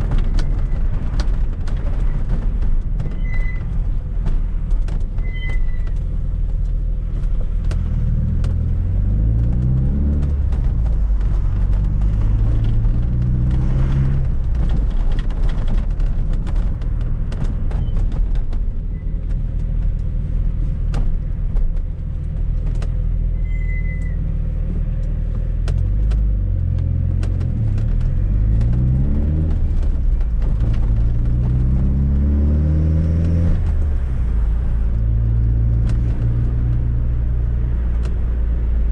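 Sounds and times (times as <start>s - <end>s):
sharp clicks and rattles: 0.0s - 23.3s, 24.0s - 31.9s
car engine revving through gears: 7.7s - 15.5s, 25.6s - 38.8s.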